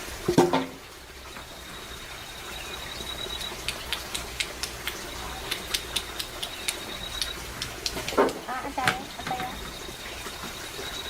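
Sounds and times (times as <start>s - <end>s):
high insect whine: 1.1s - 4.2s, 8.5s - 11.0s.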